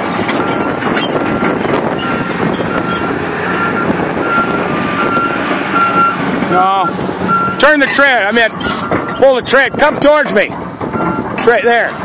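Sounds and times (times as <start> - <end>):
excavator diesel engine running: 0.0 - 12.0
travel alarm beeping: 6.8 - 7.6.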